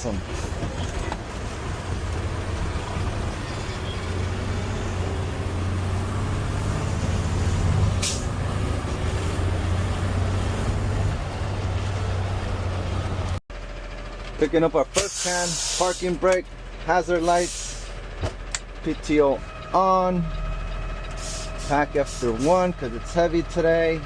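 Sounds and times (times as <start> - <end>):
garbage truck engine running: 0.0 - 24.0
air hiss: 15.0 - 16.0, 21.2 - 22.4.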